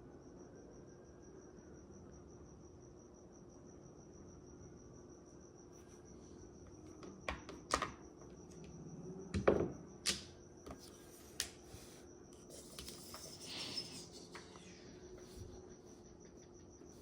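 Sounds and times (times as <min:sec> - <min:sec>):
faint high whine: 0:00.0 - 0:17.0
tiles sliding: 0:10.7 - 0:16.0.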